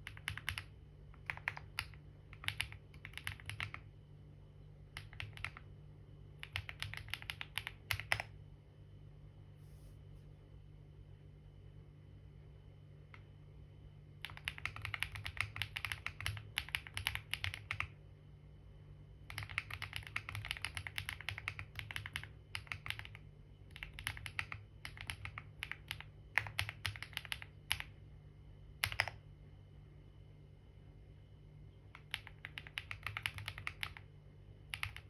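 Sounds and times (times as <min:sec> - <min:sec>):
typing on computer keyboard: 0:00.0 - 0:03.9, 0:04.9 - 0:05.7, 0:06.4 - 0:08.4, 0:14.2 - 0:18.0, 0:19.2 - 0:28.0, 0:28.8 - 0:29.2, 0:32.0 - 0:34.1, 0:34.7 - 0:35.0.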